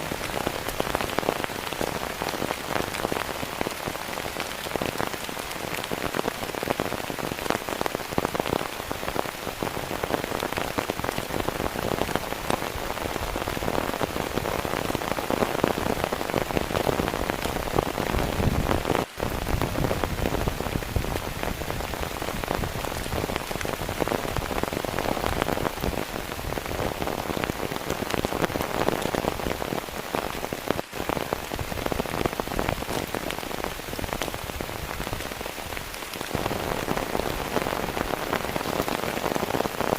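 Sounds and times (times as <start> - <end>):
heavy rain patter: 0.0 - 39.9.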